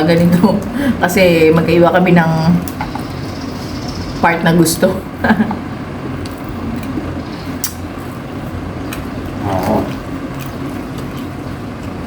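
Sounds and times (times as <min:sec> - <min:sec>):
steady low hum: 0:00.0 - 0:12.0
chewing chicken: 0:06.3 - 0:12.0.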